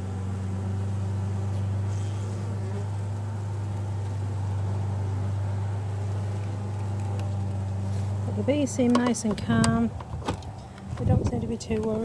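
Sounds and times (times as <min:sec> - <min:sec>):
honeybees humming: 0:00.0 - 0:12.0.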